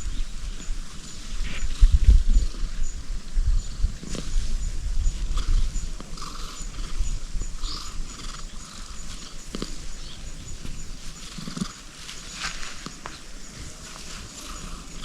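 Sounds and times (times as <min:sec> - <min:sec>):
cat purring: 0:04.0 - 0:11.9.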